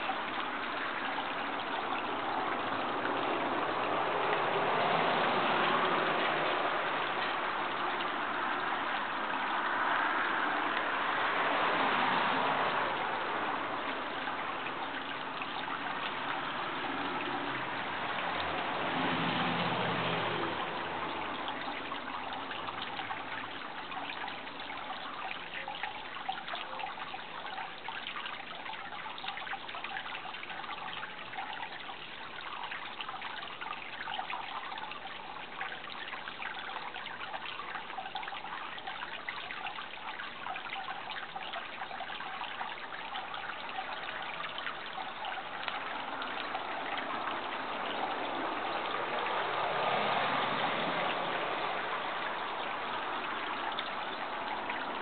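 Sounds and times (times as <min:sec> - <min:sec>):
water trickling: 0:00.0 - 0:55.0.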